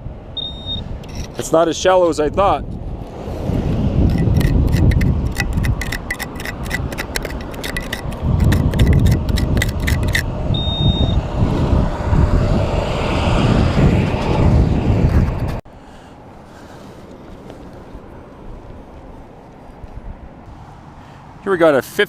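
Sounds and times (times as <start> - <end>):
metal detector beep: 0.4 - 1.4, 9.8 - 11.2
digging tool scraping gravelly dirt: 3.1 - 10.3
low rumble: 7.4 - 15.6.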